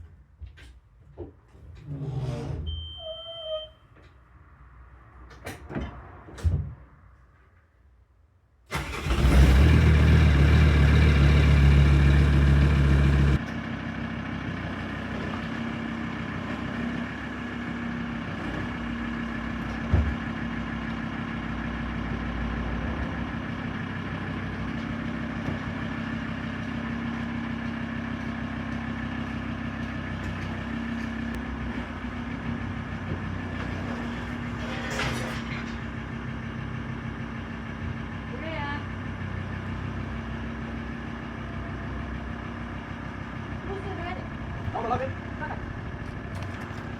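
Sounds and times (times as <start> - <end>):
diesel engine starting and idling: 8.7 - 34.6, 35.2 - 46.9.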